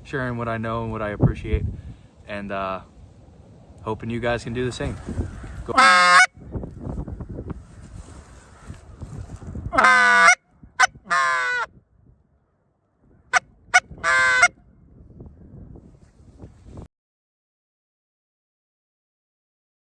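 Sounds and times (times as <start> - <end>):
low wind rumble: 0.0 - 16.9
goose honking: 5.7 - 6.3, 9.8 - 11.7, 13.3 - 14.5.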